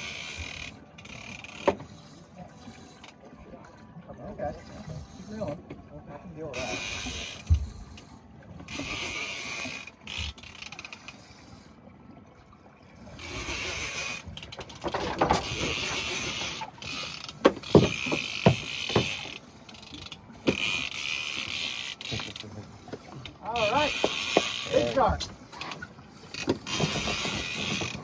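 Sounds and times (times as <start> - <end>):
fishing reel ratcheting whir: 0.0 - 2.2, 6.6 - 7.5, 8.7 - 11.7, 13.1 - 22.9, 23.5 - 28.0.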